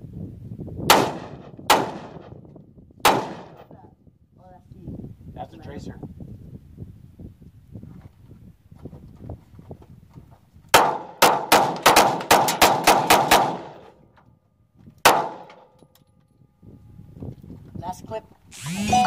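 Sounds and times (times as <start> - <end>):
gunshots: 0.9 - 2.4, 3.0 - 3.7, 10.8 - 13.8.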